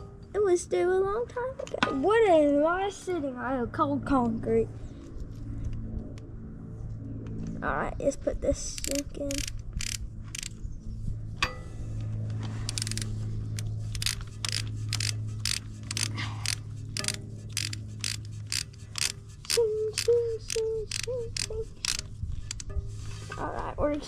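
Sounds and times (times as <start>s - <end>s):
steady low hum: 0.0s - 24.0s
ratchet wrench clicking: 8.7s - 10.6s, 12.6s - 22.8s.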